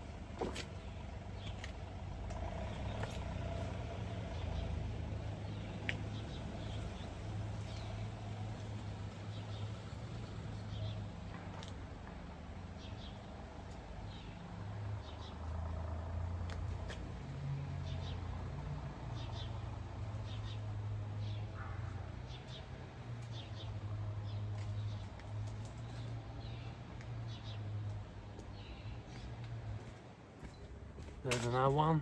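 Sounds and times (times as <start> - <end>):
small birds chirping: 0.5 - 9.8, 19.1 - 32.0.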